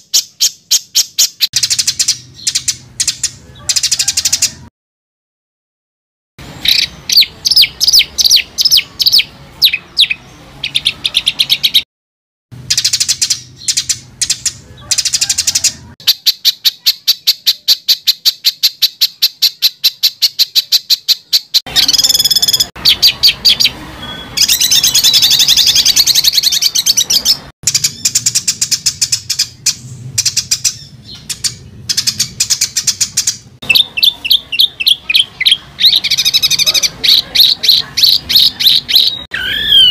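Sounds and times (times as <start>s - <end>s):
fast bird trill: 0.0s - 4.7s, 6.6s - 11.8s, 12.7s - 39.9s
songbird singing harsh notes: 0.0s - 4.7s, 6.4s - 11.8s, 12.6s - 39.9s.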